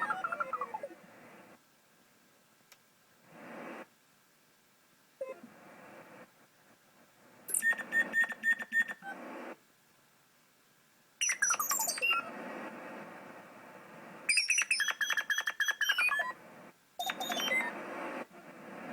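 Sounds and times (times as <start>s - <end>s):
synthesized bird chirps: 0.0s - 0.9s, 7.5s - 9.1s, 11.2s - 12.3s, 14.3s - 16.4s, 17.0s - 17.8s
synthetic wind hiss: 3.2s - 4.0s, 11.4s - 14.3s, 17.6s - 18.9s.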